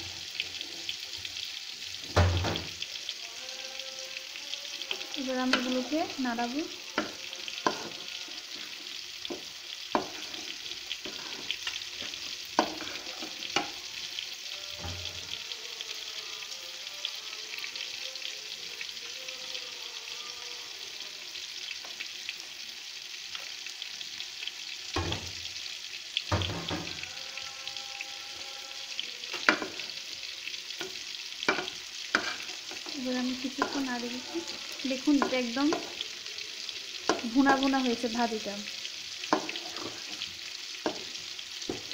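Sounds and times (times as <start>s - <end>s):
food sizzling in a pot: 0.0s - 41.9s
spatula knocking and scraping pot: 7.0s - 8.0s, 8.6s - 13.8s, 31.5s - 32.9s, 33.6s - 34.6s, 35.2s - 36.0s, 39.3s - 40.2s.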